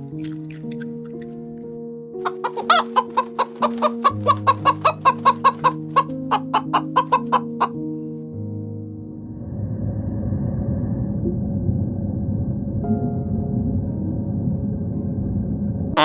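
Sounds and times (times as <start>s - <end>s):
gentle background music: 0.0s - 16.0s
chicken clucking: 2.2s - 7.8s.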